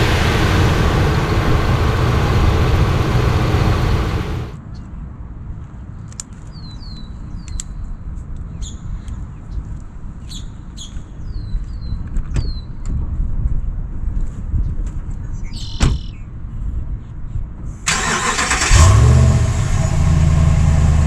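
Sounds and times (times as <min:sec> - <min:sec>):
low rumble: 0:00.0 - 0:04.6, 0:18.8 - 0:21.0
bird chirping: 0:15.4 - 0:16.2.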